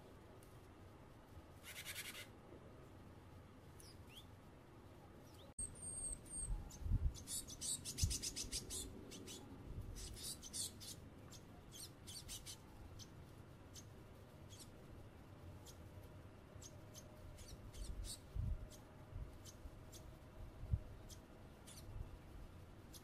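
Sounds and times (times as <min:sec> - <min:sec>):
tits calling: 0:01.6 - 0:02.4, 0:03.7 - 0:04.4, 0:05.2 - 0:14.9, 0:15.5 - 0:20.3, 0:20.9 - 0:23.0.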